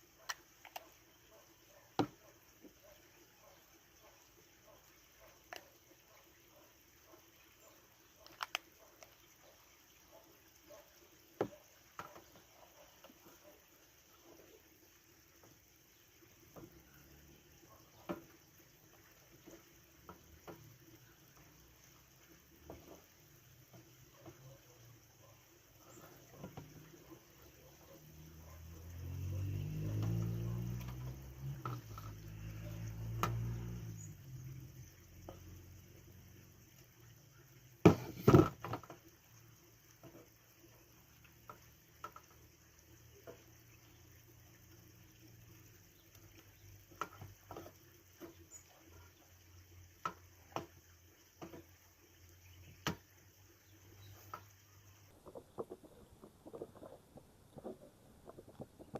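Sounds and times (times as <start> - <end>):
light clicks and taps: 8.2 - 9.2.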